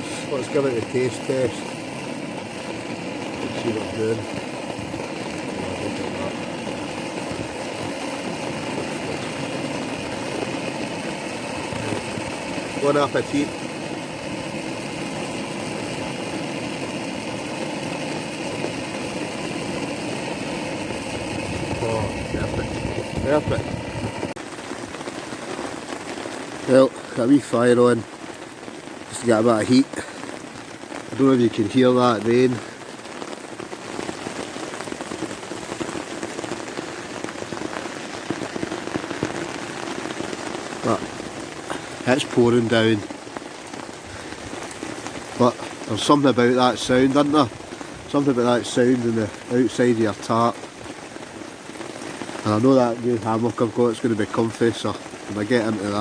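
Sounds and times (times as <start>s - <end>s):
heavy rain on a tarp: 0.0s - 56.0s.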